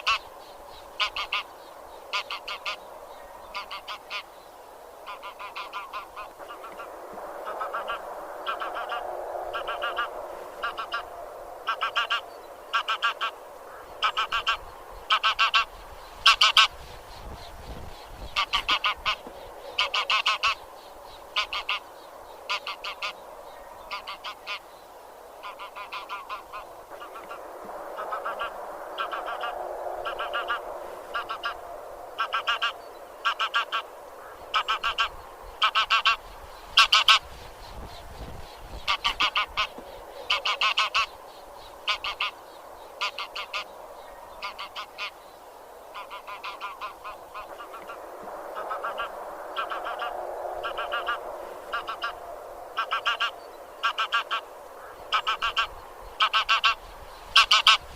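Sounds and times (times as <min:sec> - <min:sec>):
geese honking: 0:00.0 - 0:00.3, 0:01.0 - 0:01.5, 0:02.1 - 0:02.8, 0:03.5 - 0:04.3, 0:05.0 - 0:16.8, 0:18.3 - 0:20.6, 0:21.3 - 0:21.8, 0:22.5 - 0:23.2, 0:23.9 - 0:24.6, 0:25.4 - 0:27.4, 0:28.0 - 0:31.6, 0:32.2 - 0:36.2, 0:36.8 - 0:37.3, 0:38.8 - 0:41.1, 0:41.8 - 0:42.4, 0:43.0 - 0:43.7, 0:44.4 - 0:45.2, 0:45.9 - 0:48.0, 0:48.6 - 0:52.2, 0:52.8 - 0:57.9
murmur of geese: 0:00.0 - 0:57.9.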